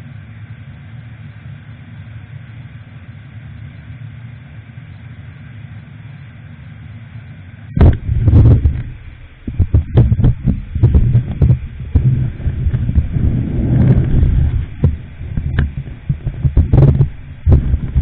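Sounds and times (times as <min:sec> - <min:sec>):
motorcycle engine rumble: 0:07.7 - 0:18.0
wind buffeting thumps: 0:07.7 - 0:18.0.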